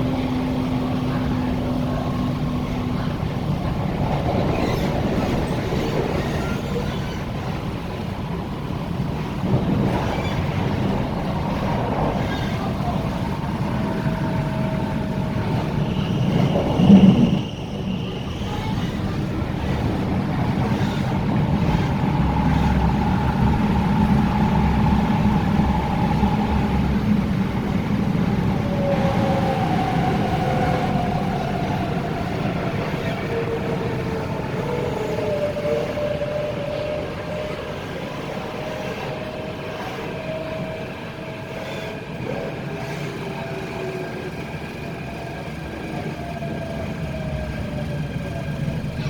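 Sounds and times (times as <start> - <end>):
train wheel and track noise: 0.0 - 49.0
high squeal: 15.4 - 19.9.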